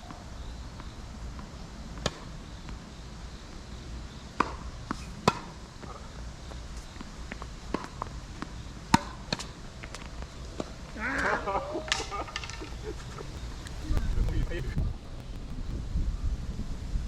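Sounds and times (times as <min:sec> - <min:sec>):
tennis ball struck by racket: 0:04.4 - 0:05.6, 0:08.9 - 0:09.5
wind on microphone: 0:12.7 - 0:17.0.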